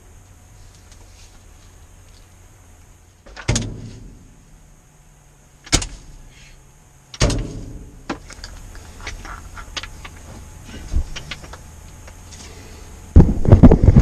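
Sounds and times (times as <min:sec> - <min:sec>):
sharp bangs: 0:07.2 - 0:08.1.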